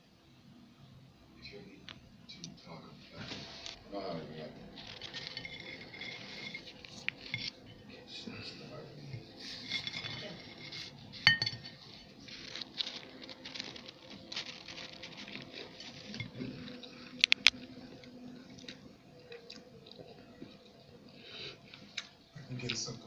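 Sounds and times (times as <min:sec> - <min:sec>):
rustle of food handled: 0:03.1 - 0:03.8, 0:04.7 - 0:07.5, 0:09.2 - 0:17.6
tableware clinking: 0:04.9 - 0:07.6, 0:09.1 - 0:11.9, 0:16.0 - 0:16.8.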